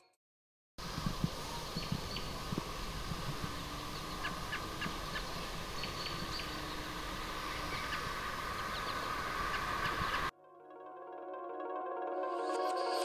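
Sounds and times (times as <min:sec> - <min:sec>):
bird chirps: 0:01.5 - 0:02.4, 0:03.5 - 0:10.3.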